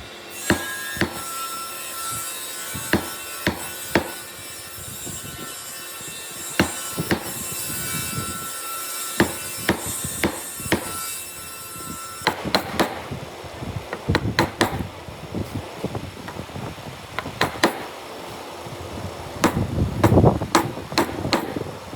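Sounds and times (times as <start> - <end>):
hammer striking wood: 0.4 - 4.4, 6.5 - 13.2, 13.9 - 14.9, 16.2 - 18.1, 19.4 - 21.8.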